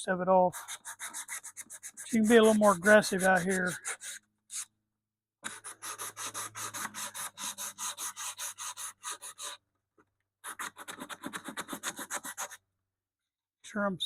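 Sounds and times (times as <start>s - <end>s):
sandpaper scraping wood: 0.5s - 4.7s, 5.4s - 9.6s, 10.4s - 12.6s.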